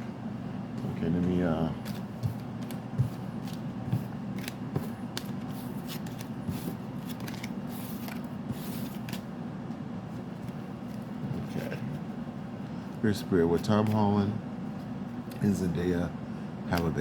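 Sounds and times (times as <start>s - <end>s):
low steady hum: 0.0s - 17.0s
cards being shuffled: 1.8s - 9.3s.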